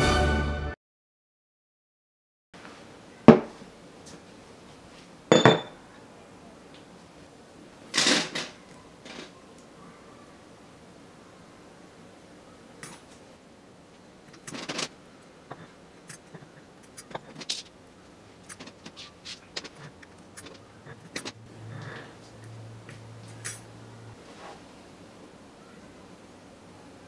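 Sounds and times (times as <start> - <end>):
low steady hum: 8.6 - 27.0.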